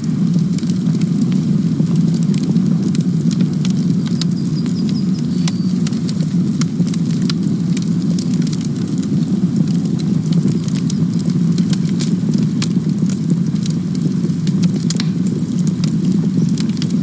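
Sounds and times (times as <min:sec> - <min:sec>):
flames rushing: 0:00.0 - 0:17.0
wood crackling and popping: 0:00.0 - 0:17.0.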